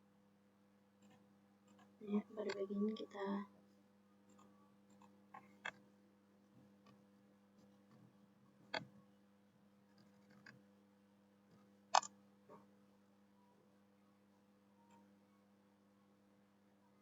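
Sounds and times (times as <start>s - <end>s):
faint steady hum: 0.0s - 17.0s
computer mouse clicks: 8.7s - 8.9s, 9.9s - 10.6s, 11.9s - 12.2s.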